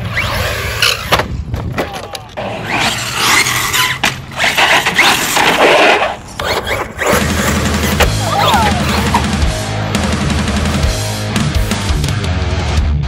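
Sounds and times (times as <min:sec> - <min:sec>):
tyres skidding and squealing: 0:00.0 - 0:01.2, 0:01.8 - 0:09.7.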